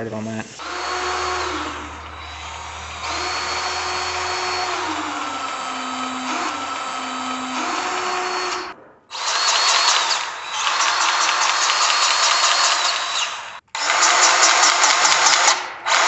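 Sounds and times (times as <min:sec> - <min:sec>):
grease gun motor whining: 0:00.5 - 0:14.3.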